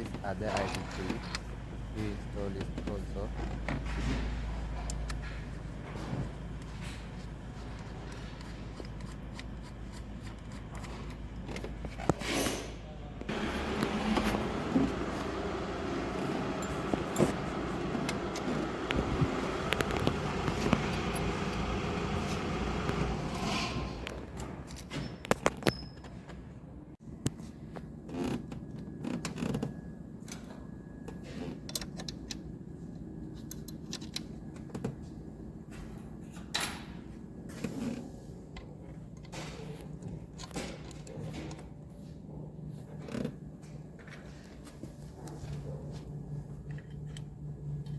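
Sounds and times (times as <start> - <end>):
hand tools and metal parts clinking: 16.1 - 26.3.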